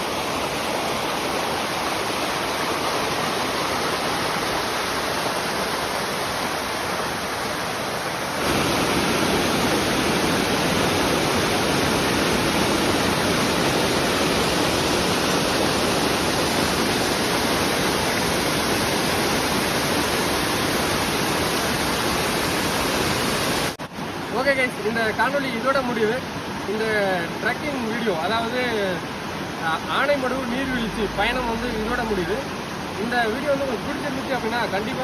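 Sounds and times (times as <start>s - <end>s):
waterfall pouring: 0.0s - 23.8s.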